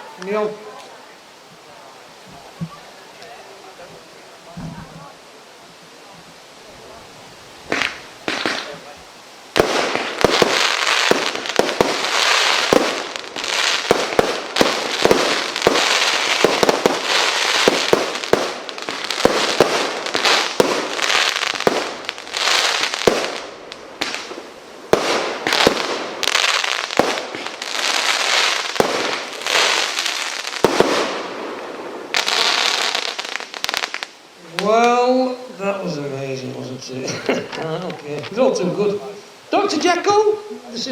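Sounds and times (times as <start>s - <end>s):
firework crackling hiss: 0.0s - 40.9s
firework bangs: 7.6s - 34.7s.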